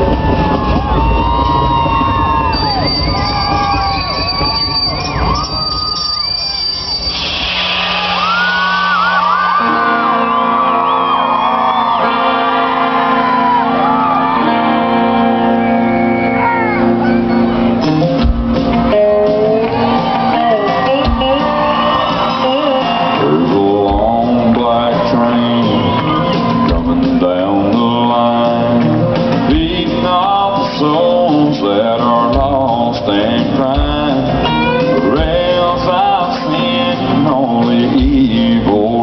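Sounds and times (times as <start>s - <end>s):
drums: 0.0s - 39.0s
live country band playing: 0.0s - 39.0s.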